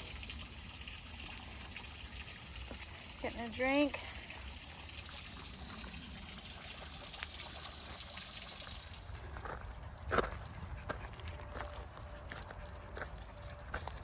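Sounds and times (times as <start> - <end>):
creek trickling: 0.0 - 10.1.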